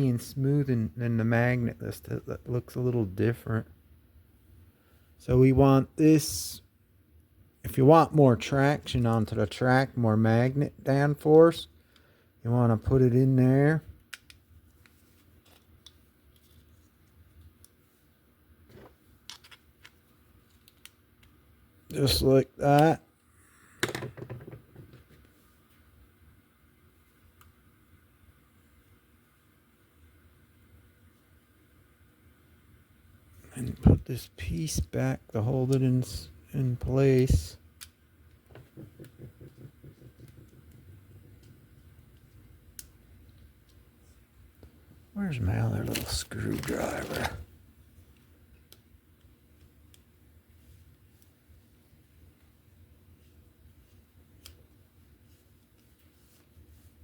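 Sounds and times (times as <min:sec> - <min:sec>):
small clicks and taps: 0:37.8 - 0:43.8.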